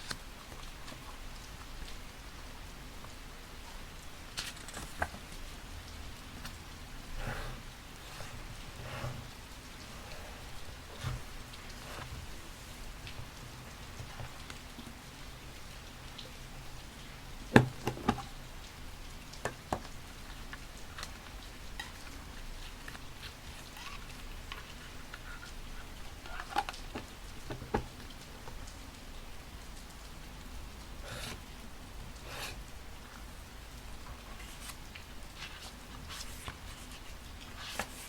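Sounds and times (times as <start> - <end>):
paper rustling and clicking: 0.0 - 1.1, 4.3 - 14.8, 19.2 - 28.9, 33.8 - 38.0
steady rain: 0.0 - 38.0.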